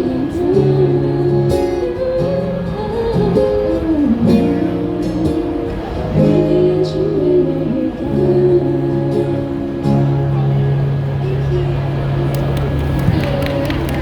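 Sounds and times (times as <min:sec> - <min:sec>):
live band with guitars: 0:00.0 - 0:14.0.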